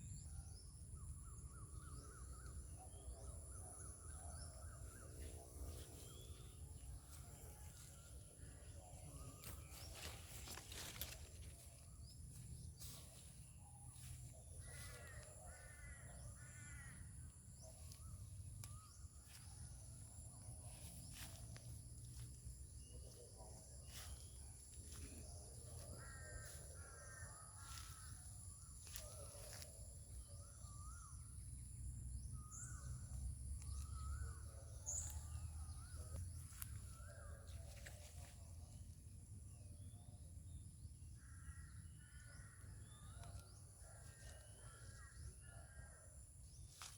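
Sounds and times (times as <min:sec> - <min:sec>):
steady high-pitched whine: 0:00.0 - 0:43.8
birds calling: 0:01.2 - 0:31.4.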